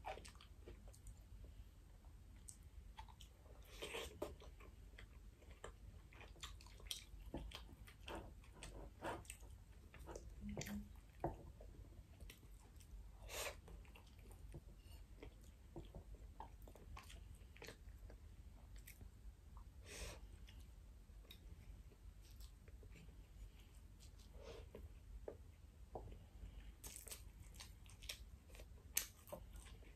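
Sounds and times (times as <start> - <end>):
faint chewing and mouth sounds: 0.0 - 29.9.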